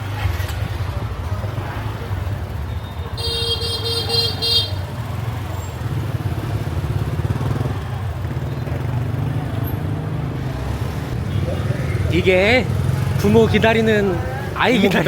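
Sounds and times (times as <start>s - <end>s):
city traffic rumble: 0.0s - 15.0s
vehicle horn honking: 3.2s - 4.9s.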